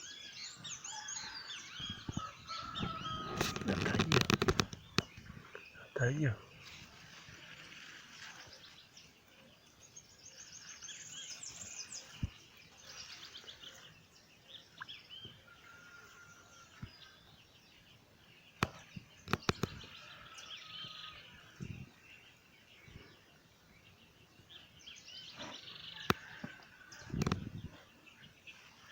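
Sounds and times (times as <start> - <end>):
wild birds singing: 0.0 - 28.9
sharp clicks: 3.4 - 5.2.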